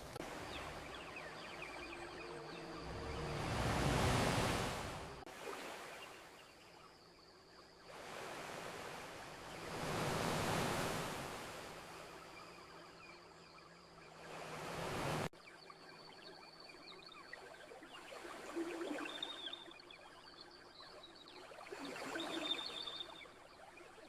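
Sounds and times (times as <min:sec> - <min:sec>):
ocean waves washing onto shore: 0:00.0 - 0:06.7, 0:07.9 - 0:12.8, 0:14.1 - 0:15.3.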